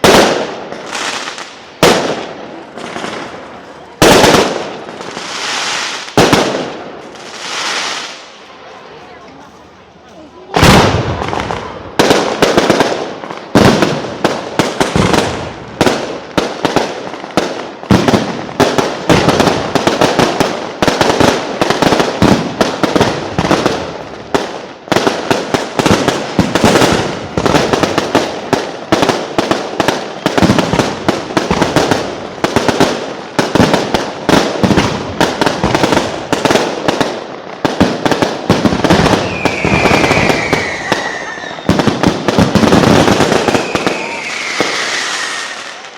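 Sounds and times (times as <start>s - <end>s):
fireworks bangs and crackling: 0.0s - 45.9s
falling firework whistle: 38.8s - 42.0s, 43.2s - 45.9s.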